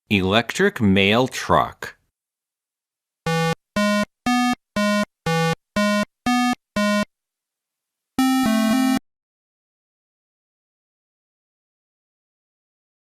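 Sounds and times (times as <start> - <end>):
synthesizer tune: 3.3 - 7.1, 8.2 - 9.0.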